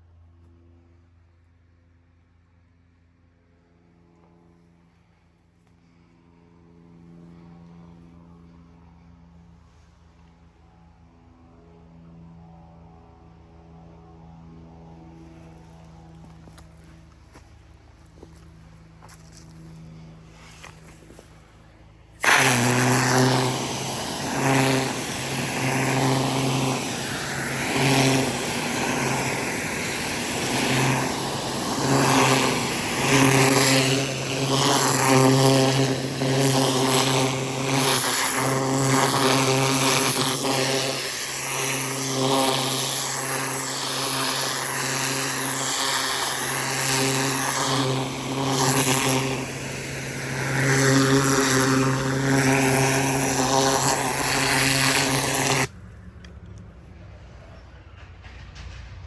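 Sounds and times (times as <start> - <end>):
pressure washer engine: 5.7 - 59.0
water spray hiss: 22.2 - 55.7.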